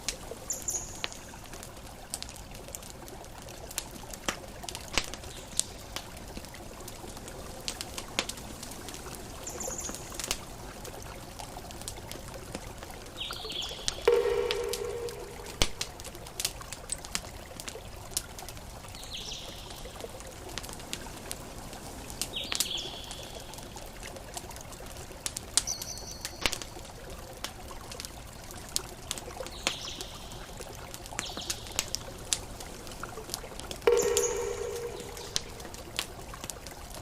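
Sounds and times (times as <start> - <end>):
campfire crackling and popping: 0.0 - 37.0
short high chirps: 14.1 - 15.8, 33.9 - 35.8.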